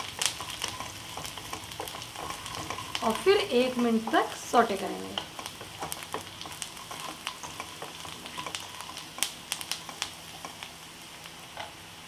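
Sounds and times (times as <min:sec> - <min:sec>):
food sizzling in oil: 0:00.0 - 0:12.0
spatula clicks and scrapes: 0:00.2 - 0:03.8, 0:05.2 - 0:10.6.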